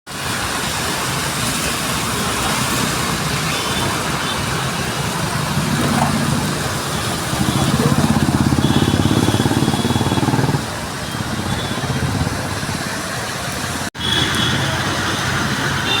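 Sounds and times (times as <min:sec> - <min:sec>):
street traffic: 0:00.1 - 0:16.0
motorcycle engine idling: 0:05.2 - 0:12.6.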